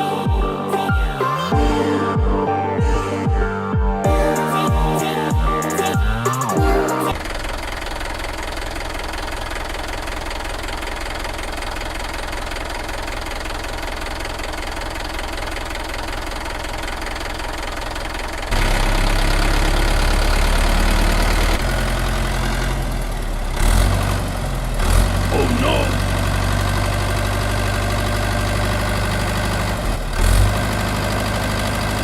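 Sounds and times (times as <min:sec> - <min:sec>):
engine running with knocking: 0:07.1 - 0:32.0.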